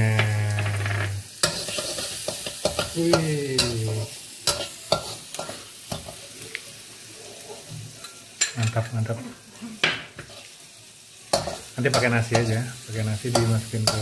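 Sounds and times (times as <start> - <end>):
vegetables sizzling in butter: 0.0 - 14.0
metal spatula scraping pan: 0.2 - 3.0.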